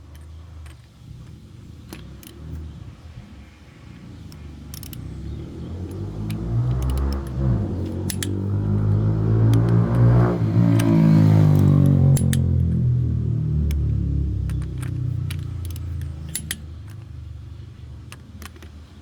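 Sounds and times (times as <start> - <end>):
short clicks: 3.9 - 13.0, 13.6 - 19.0
car engine accelerating: 3.9 - 18.3.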